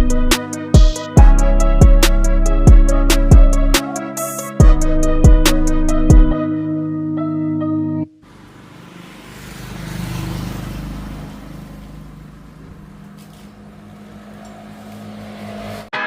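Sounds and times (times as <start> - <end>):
road or wind noise: 8.2 - 15.9
vehicle engine running: 8.2 - 15.9.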